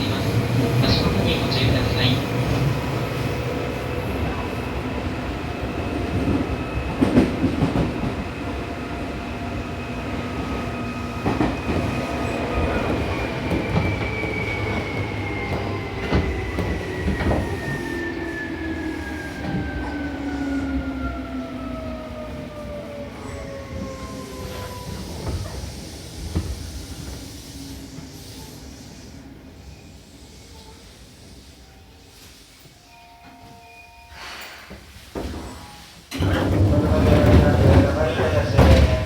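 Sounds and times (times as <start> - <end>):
train wheels clacking on rails: 5.8 - 8.7, 10.2 - 18.4, 34.3 - 39.0.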